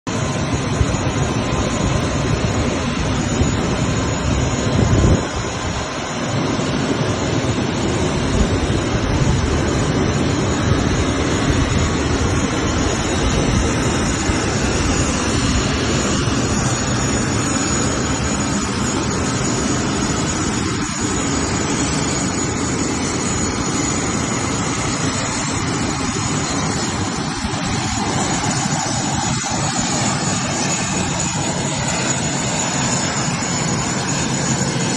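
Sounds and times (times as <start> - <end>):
jet engines running: 0.1 - 34.9.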